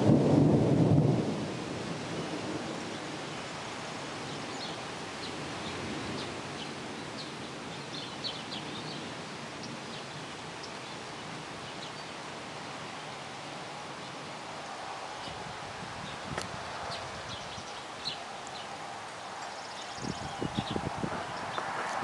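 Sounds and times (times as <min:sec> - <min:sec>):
birds chirping: 0:04.2 - 0:12.3, 0:16.0 - 0:21.8.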